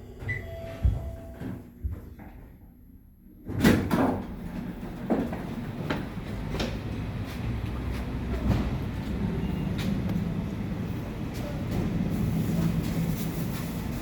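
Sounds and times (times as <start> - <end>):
elevator rumble: 0.0 - 14.0.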